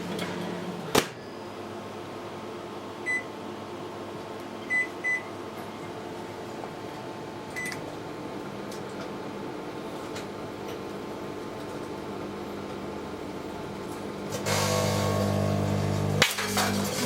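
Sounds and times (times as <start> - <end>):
microwave oven humming: 0.0 - 17.0
microwave keypad beeping: 3.0 - 3.3, 4.7 - 5.3, 7.6 - 7.8.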